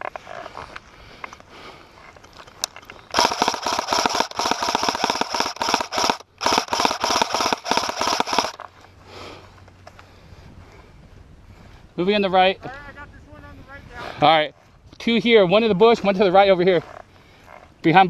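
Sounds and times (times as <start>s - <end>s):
airsoft rifle rapid fire: 3.1s - 8.6s.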